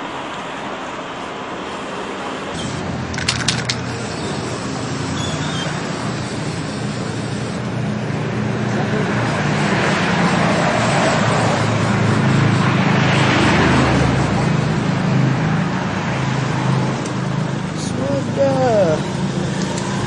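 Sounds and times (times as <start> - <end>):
street traffic hum: 0.0 - 20.0
sharp clicks: 19.5 - 20.0.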